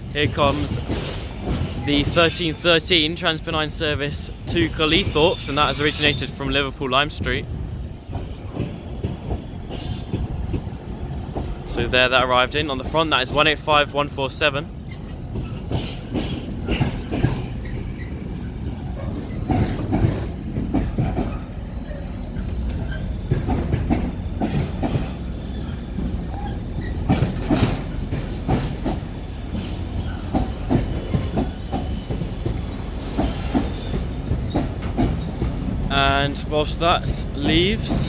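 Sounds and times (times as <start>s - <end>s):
low train rumble: 0.0s - 38.0s
train wheels clacking over rail joints: 0.3s - 2.8s, 8.0s - 13.6s, 14.9s - 36.2s
high-pitched wheel squeal: 4.8s - 6.4s.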